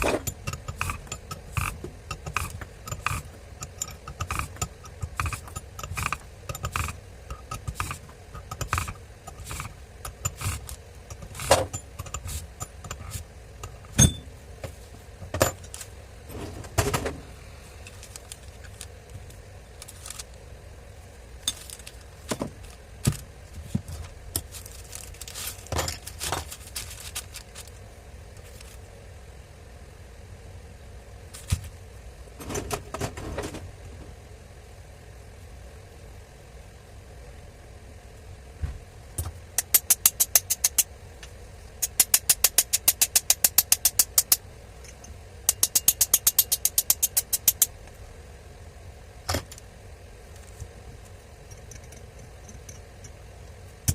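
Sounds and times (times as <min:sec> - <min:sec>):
metal tools clicking and clattering: 0:41.8 - 0:47.7.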